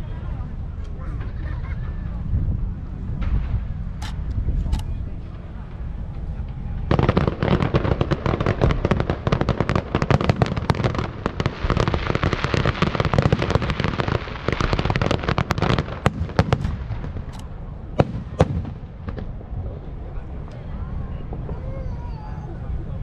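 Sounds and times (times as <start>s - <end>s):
fireworks bangs and crackling: 2.5s - 23.0s.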